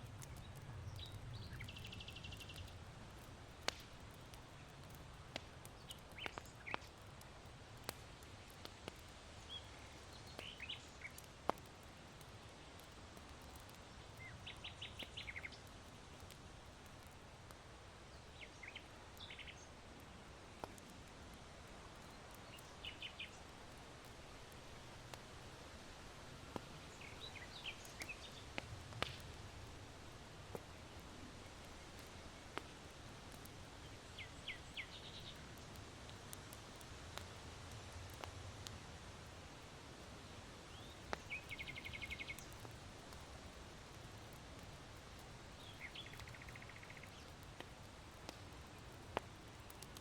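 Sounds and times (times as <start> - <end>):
charcoal crackling and popping: 0.0 - 50.0
small birds chirping: 0.1 - 7.1, 7.8 - 16.4, 18.0 - 19.8, 21.9 - 24.3, 26.5 - 29.4, 30.5 - 36.5, 40.6 - 50.0.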